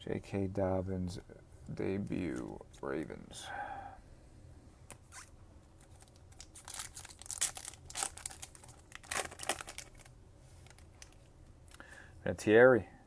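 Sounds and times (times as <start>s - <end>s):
foil wrapper tearing and crinkling: 5.8s - 11.2s.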